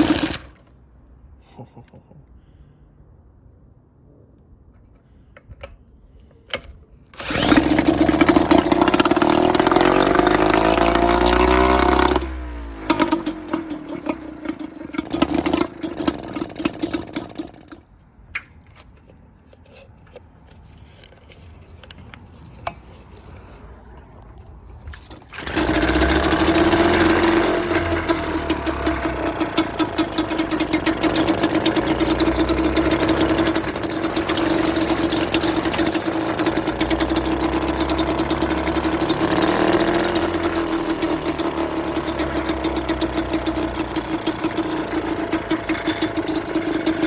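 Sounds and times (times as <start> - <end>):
outboard motor running: 0.0 - 0.6, 7.2 - 17.8, 25.0 - 47.0.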